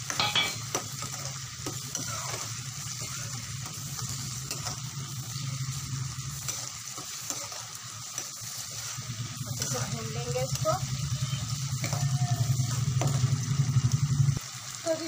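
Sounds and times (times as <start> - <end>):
tomatoes sizzling in oil: 0.0 - 15.0
metal spoon scraping pan: 0.1 - 3.8.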